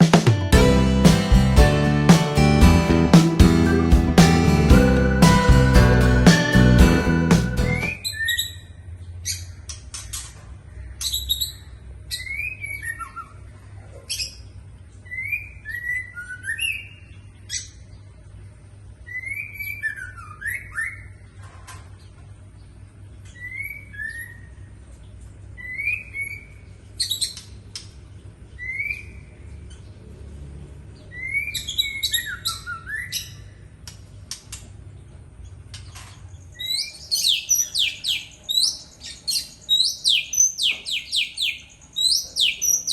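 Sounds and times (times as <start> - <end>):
magpie-robin singing: 31.0 - 33.6, 36.6 - 42.9.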